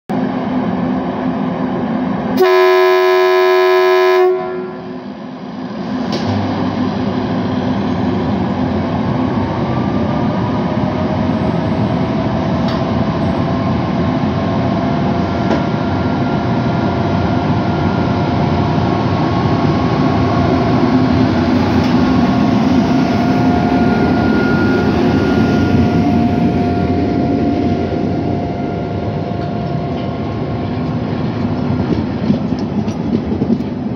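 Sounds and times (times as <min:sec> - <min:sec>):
rising whine of locomotive: 0:00.1 - 0:33.9
train rumbling: 0:00.1 - 0:33.9
train horn blast: 0:02.4 - 0:05.0.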